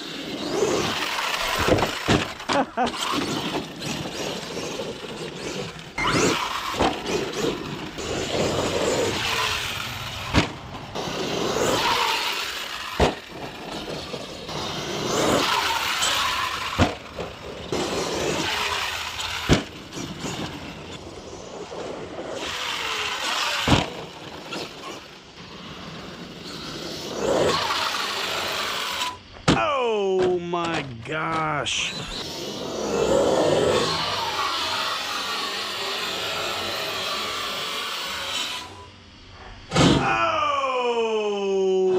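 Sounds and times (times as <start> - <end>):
electric motor whine: 0.0 - 29.2, 31.9 - 39.0
toy truck landing knocks: 0.9 - 3.7, 12.9 - 14.2, 15.1 - 17.4, 19.4 - 19.8, 23.5 - 24.1.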